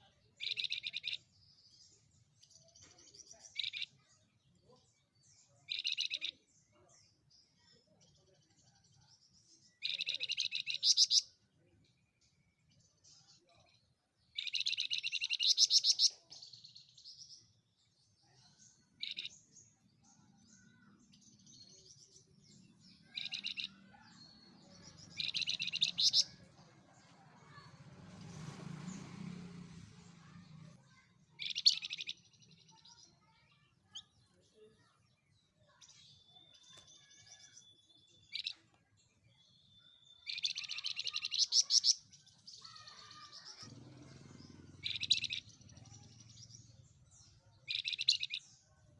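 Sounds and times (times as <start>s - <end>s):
songbird trilling: 0.4s - 1.2s, 3.6s - 4.0s, 5.7s - 6.4s, 9.8s - 11.3s, 14.3s - 16.7s, 18.9s - 19.5s, 23.0s - 26.4s, 31.4s - 32.9s, 36.4s - 38.6s, 39.5s - 43.7s, 44.4s - 46.0s, 47.6s - 48.5s.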